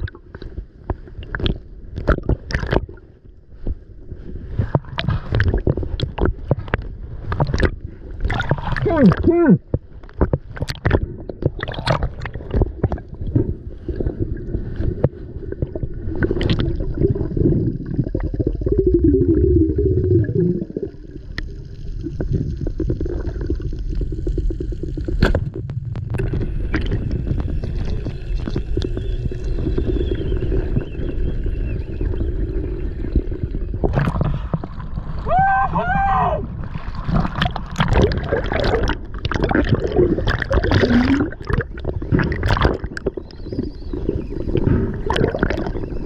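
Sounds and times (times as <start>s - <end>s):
small underwater clicks: 0.0s - 3.0s, 4.6s - 13.4s, 14.8s - 17.1s, 21.2s - 31.3s
underwater rumble and gurgling: 0.0s - 46.0s.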